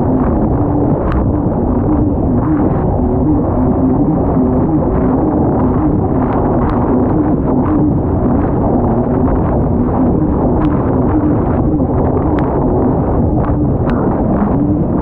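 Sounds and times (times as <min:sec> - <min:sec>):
jet ski engine running hard: 0:00.0 - 0:15.0
wind buffeting microphone: 0:00.0 - 0:15.0
sharp ticks: 0:13.8 - 0:14.1.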